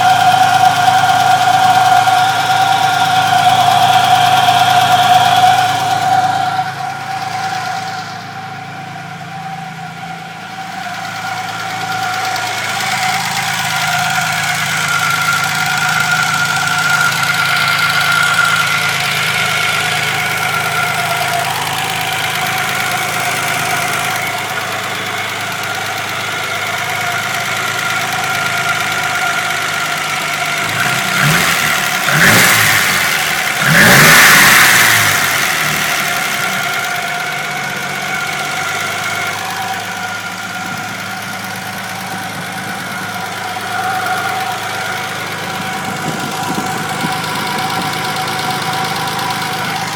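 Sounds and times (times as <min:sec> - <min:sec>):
car engine running: 0:00.0 - 0:49.9
engine revving: 0:00.0 - 0:49.9
steady high whine: 0:02.2 - 0:24.7, 0:35.9 - 0:49.9.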